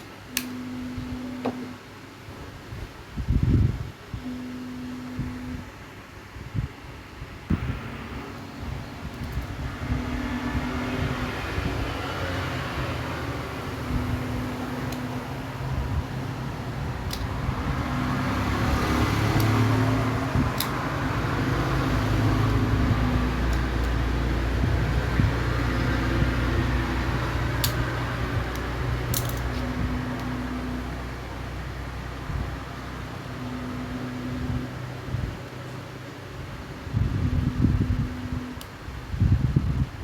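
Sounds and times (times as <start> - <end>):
mechanical whir with low hum: 0.0 - 40.0
sharp clicks: 19.2 - 19.8.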